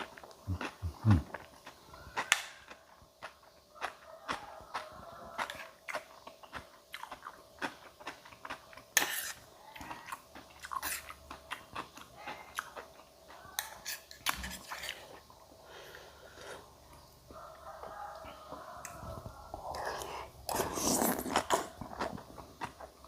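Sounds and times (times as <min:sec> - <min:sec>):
person chewing crunchy food: 0:00.0 - 0:23.0.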